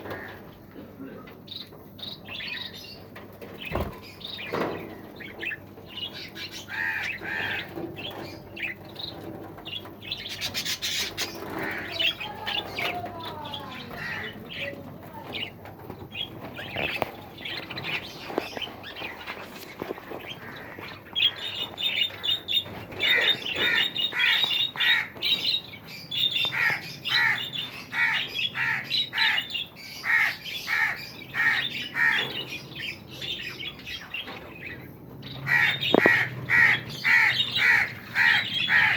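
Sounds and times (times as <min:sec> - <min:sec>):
birds chirping and squawking: 0:00.0 - 0:38.9
sharp repeated bird calls: 0:35.4 - 0:38.9.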